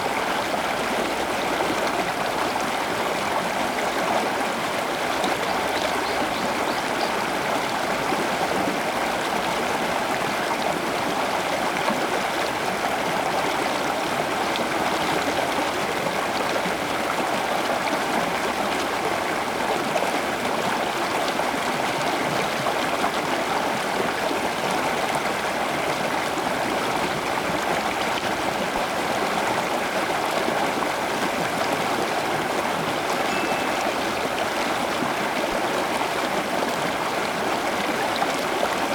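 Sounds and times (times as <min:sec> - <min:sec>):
flowing water rushing: 0:00.0 - 0:38.9.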